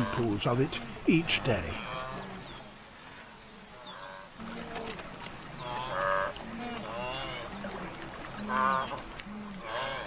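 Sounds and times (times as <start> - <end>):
wildebeest grunting calls: 0.0 - 2.6.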